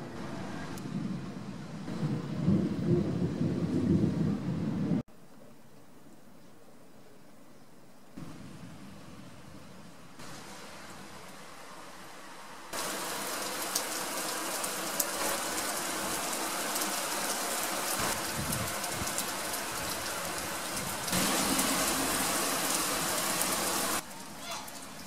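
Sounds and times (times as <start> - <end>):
low thunder rumble: 0.2 - 5.0
heavy rain: 8.2 - 25.0.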